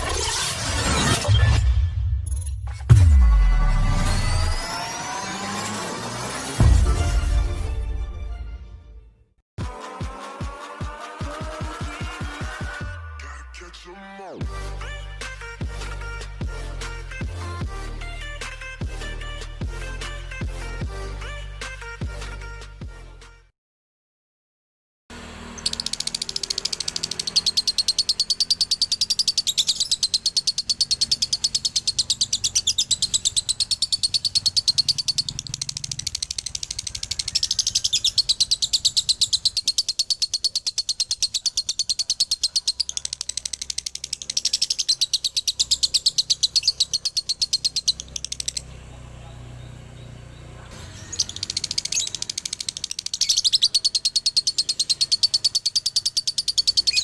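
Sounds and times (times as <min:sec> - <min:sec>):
lovebird chattering song: 0:25.6 - 0:48.8, 0:49.5 - 0:57.0.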